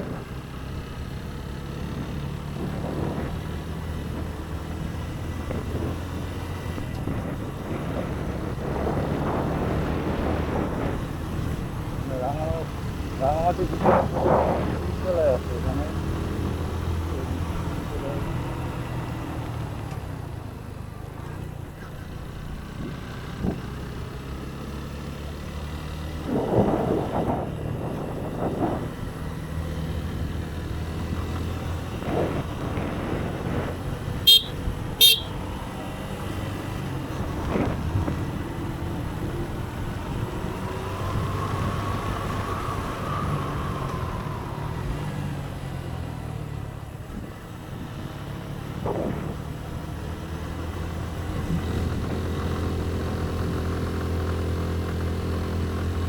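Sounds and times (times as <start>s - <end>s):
motorcycle engine running: 0.0s - 41.8s, 45.2s - 56.0s
motorcycle horn toots: 34.2s - 35.4s.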